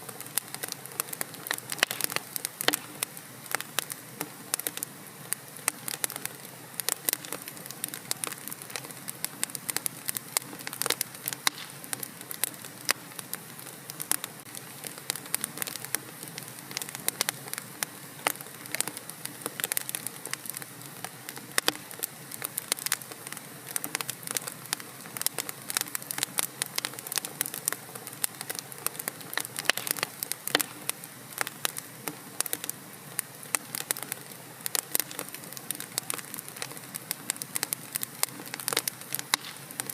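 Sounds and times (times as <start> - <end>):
fire crackling in a fireplace: 0.0 - 39.9.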